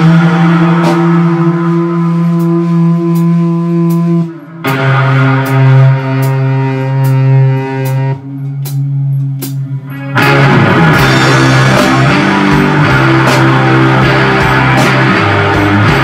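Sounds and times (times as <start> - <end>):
electric guitar sustained note: 0.0 - 16.0
loud rock music: 0.0 - 16.0
cymbal ticks: 2.2 - 9.8.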